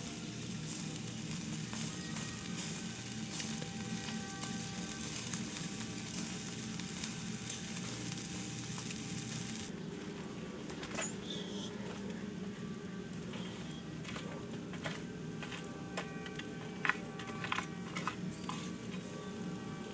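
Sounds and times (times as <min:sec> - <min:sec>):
food sizzling in a pan: 0:00.0 - 0:09.7, 0:18.3 - 0:19.9.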